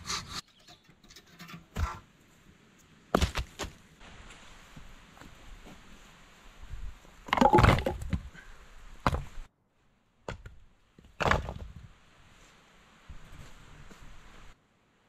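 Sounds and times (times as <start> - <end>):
wood cracks and knocks: 7.3 - 8.2, 11.1 - 11.8.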